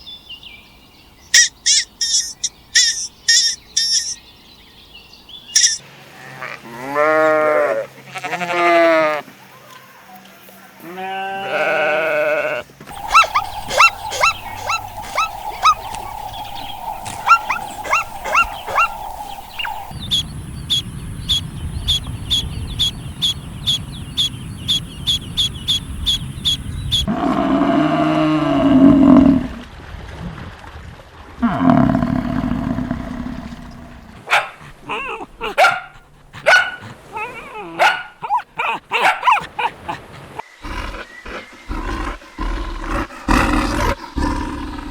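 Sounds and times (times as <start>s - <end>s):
bleating calls: 6.2s - 9.2s, 10.8s - 19.9s
dog barking: 12.9s - 19.9s, 34.2s - 40.4s
short repeated animal calls: 12.9s - 20.0s.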